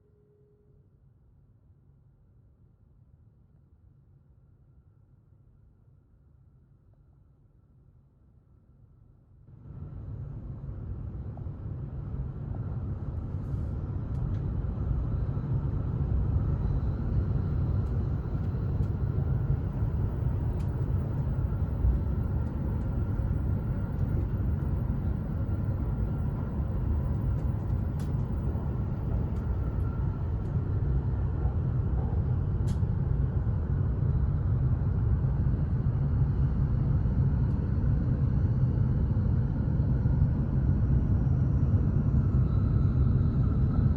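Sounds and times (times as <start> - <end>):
train rumbling: 10.1 - 34.9
faint steady whine: 11.4 - 38.8.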